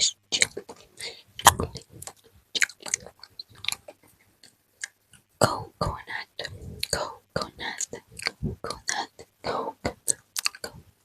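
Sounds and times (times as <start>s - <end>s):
wet mouth clicks and smacks: 1.4s - 5.2s, 7.7s - 9.0s, 9.9s - 10.7s.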